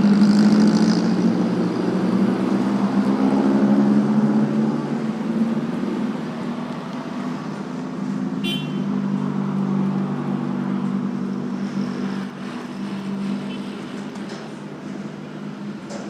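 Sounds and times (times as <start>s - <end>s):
traffic engines humming: 0.0s - 16.0s.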